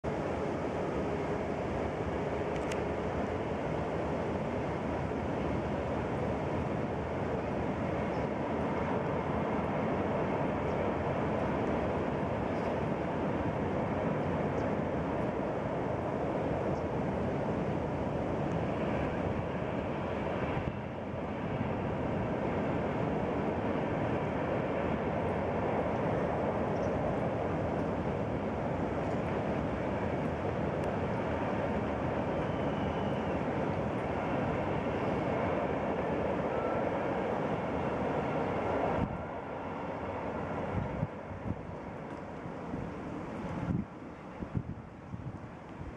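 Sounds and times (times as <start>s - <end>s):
freight train rolling on rails: 0.0s - 45.9s.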